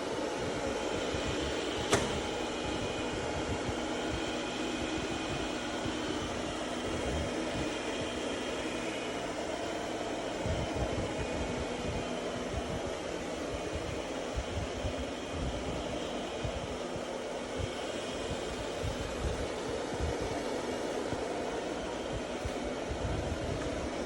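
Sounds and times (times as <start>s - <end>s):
sharp click: 1.9s - 2.2s.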